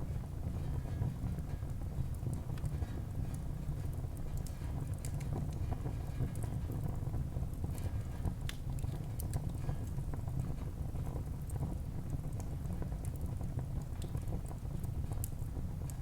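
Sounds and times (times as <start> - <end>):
low rumble of flames: 0.0 - 16.0
wood fire crackling and popping: 0.1 - 16.0.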